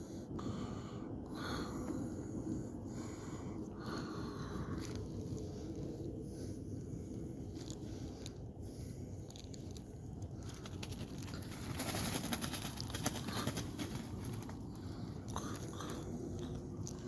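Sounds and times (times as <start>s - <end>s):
low outdoor rumble: 0.0s - 17.0s
crackling rustling noise: 4.7s - 17.0s
doves cooing: 10.4s - 14.8s.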